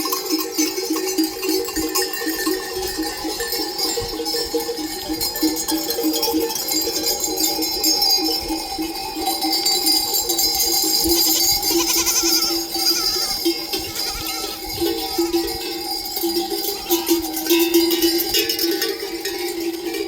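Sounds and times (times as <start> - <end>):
animal bells clanking: 0.0 - 20.0
sheep bleating: 11.0 - 15.5.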